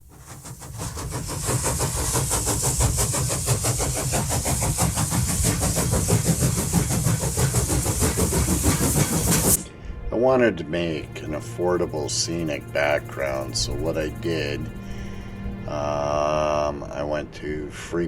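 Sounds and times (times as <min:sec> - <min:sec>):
hiss: 0:00.0 - 0:09.6, 0:11.0 - 0:16.1
machine running with fast beat: 0:00.0 - 0:09.6, 0:11.0 - 0:15.6.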